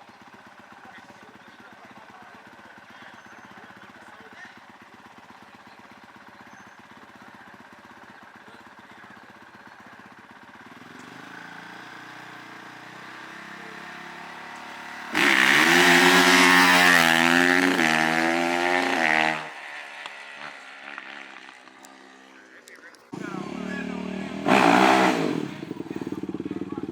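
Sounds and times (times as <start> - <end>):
small racing engine revving: 10.6 - 22.4, 23.2 - 26.9.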